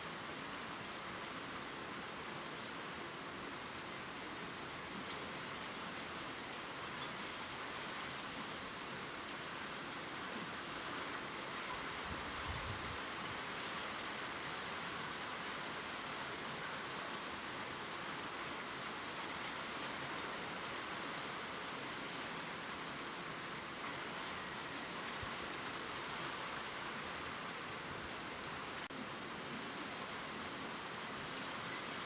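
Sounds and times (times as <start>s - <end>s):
gentle rain on leaves: 0.0s - 32.0s.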